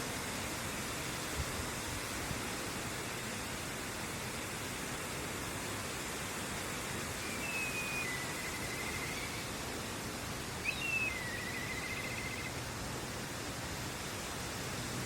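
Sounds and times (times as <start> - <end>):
river water rushing: 0.0 - 15.0
bird singing whistle and trill: 7.2 - 9.5, 10.6 - 12.5.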